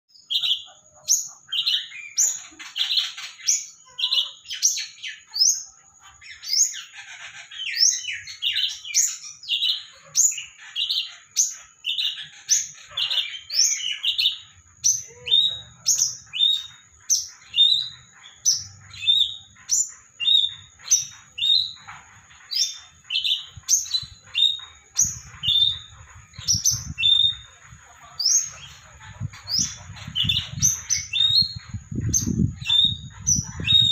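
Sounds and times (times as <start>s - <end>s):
bird singing chirping phrase: 1.5s - 33.9s.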